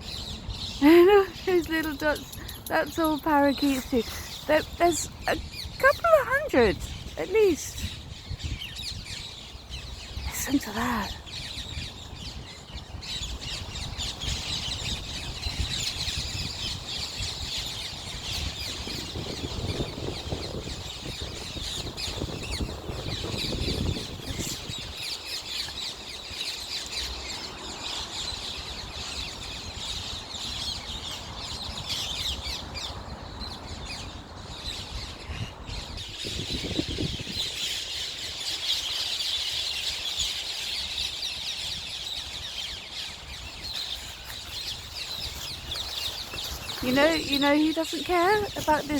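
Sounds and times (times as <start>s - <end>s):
parakeets calling in chorus: 0.2s - 12.0s, 43.0s - 48.9s.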